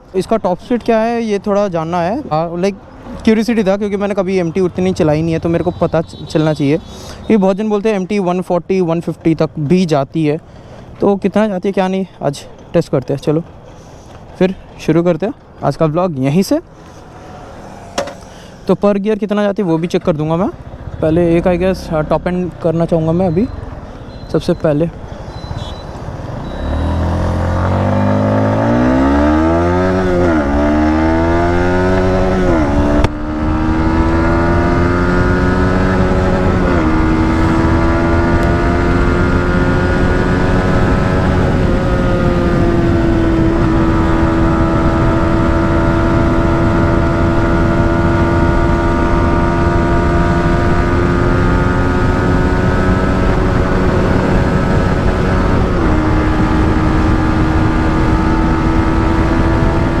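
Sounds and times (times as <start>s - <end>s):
motorcycle engine accelerating: 4.0s - 7.3s, 16.7s - 18.7s, 25.0s - 60.0s.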